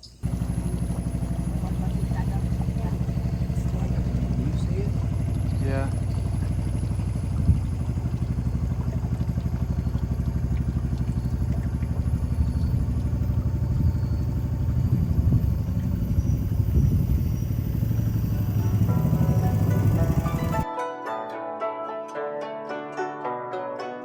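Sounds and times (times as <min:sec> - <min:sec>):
engine running: 0:00.0 - 0:20.7.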